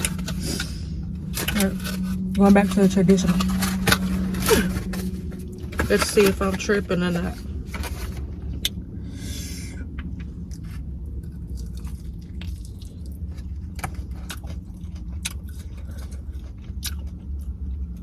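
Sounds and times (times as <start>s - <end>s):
steady low hum: 0.0s - 18.0s
person crunching food: 10.0s - 18.0s.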